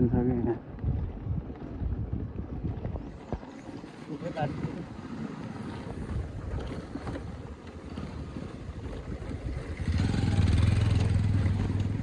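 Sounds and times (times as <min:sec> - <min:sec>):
wind rushing over microphone: 0:00.0 - 0:12.0
motorcycle engine running: 0:07.9 - 0:12.0.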